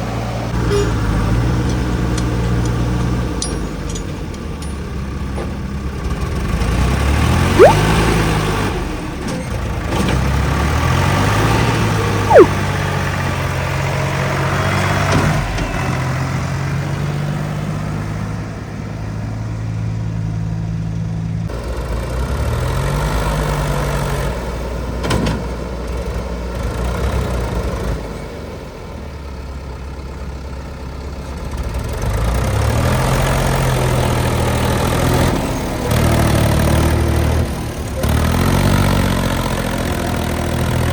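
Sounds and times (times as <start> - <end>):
sharp loud sounds: 7.6 - 7.9, 12.3 - 12.6.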